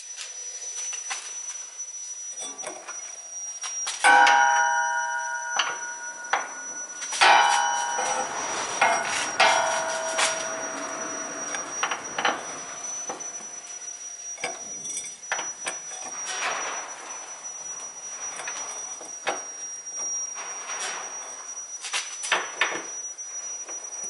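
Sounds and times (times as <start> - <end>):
metal tools clanking: 4.1 - 13.4.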